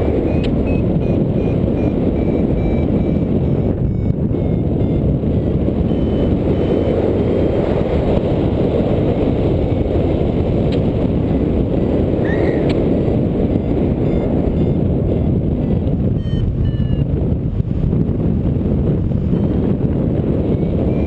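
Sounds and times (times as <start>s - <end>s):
strong wind buffeting microphone: 0.0s - 21.0s.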